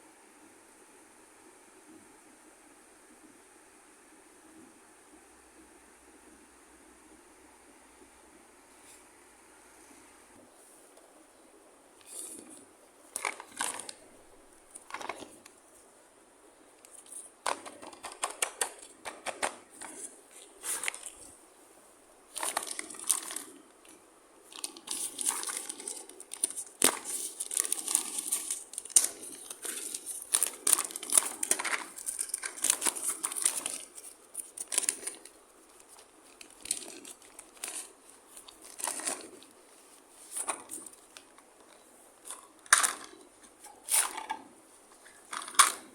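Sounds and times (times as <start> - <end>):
plastic packaging crinkling: 12.0 - 15.6, 16.8 - 21.4, 22.3 - 45.9.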